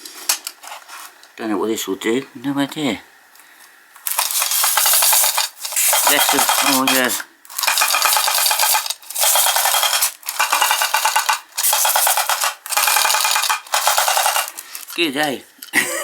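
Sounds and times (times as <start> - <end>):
toy car clicking rattle: 4.0 - 15.4.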